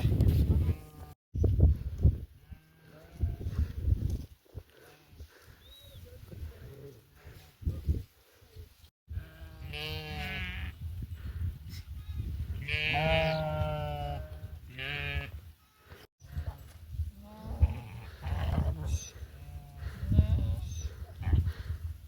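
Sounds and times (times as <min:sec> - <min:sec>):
sheep bleating: 0:09.2 - 0:10.7, 0:12.6 - 0:15.3.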